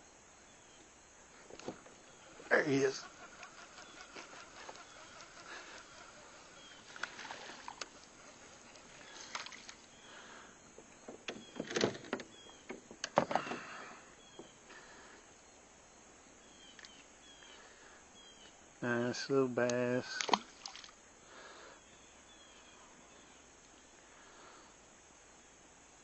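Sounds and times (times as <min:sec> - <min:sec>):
fish splashing: 0:02.1 - 0:10.2, 0:20.2 - 0:21.0.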